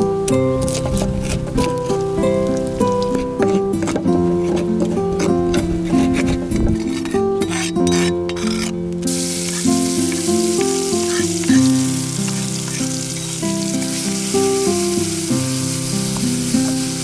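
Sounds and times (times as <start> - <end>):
background music: 0.0 - 17.0
food sizzling in a pan: 9.0 - 17.0.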